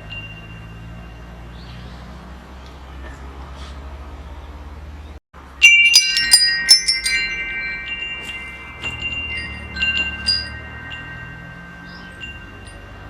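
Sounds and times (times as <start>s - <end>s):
metal wind chimes ringing: 0.0s - 2.3s, 5.4s - 13.0s.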